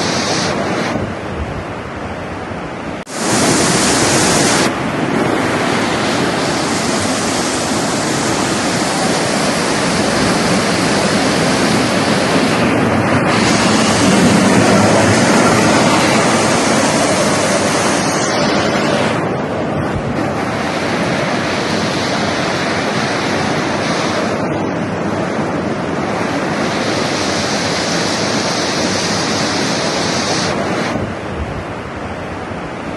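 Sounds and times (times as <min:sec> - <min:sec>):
heavy rain: 0:00.0 - 0:32.9
rushing water: 0:00.0 - 0:32.9.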